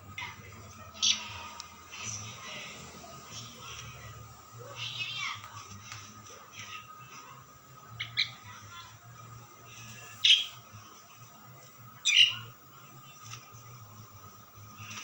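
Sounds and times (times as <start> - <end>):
faint steady hum: 0.0 - 15.0
starling calling: 0.9 - 1.5, 7.9 - 8.7, 9.8 - 10.7, 12.0 - 12.6.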